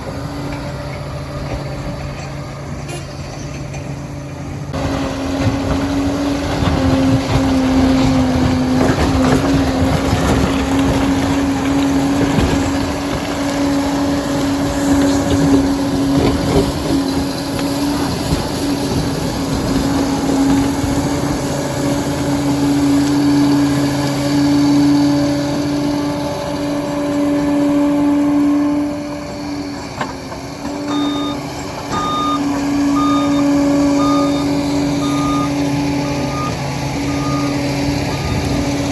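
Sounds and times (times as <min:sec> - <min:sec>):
bulldozer diesel engine running: 0:00.0 - 0:38.9
reversing alarm beeping: 0:30.8 - 0:38.9.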